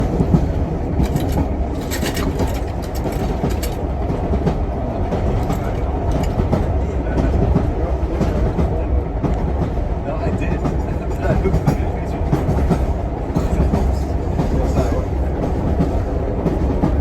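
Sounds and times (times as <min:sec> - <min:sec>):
train wheel clicks: 0:00.0 - 0:06.7
train rumbling on rails: 0:00.0 - 0:17.0.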